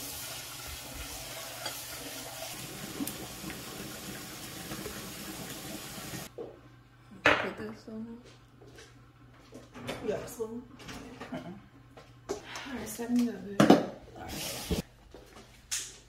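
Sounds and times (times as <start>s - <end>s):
noodles sizzling in a pan: 0.0s - 6.3s.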